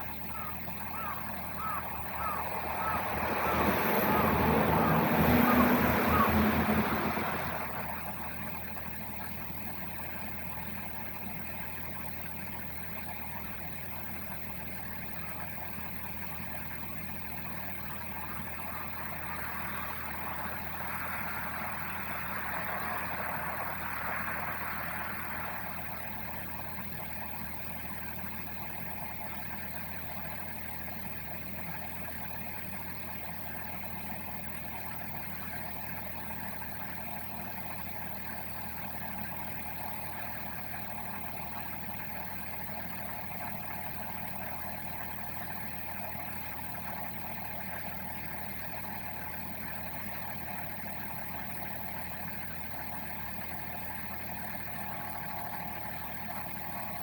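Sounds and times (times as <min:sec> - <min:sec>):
car engine idling: 0:00.0 - 0:57.0
vehicle passing by: 0:01.0 - 0:08.3, 0:18.0 - 0:26.7.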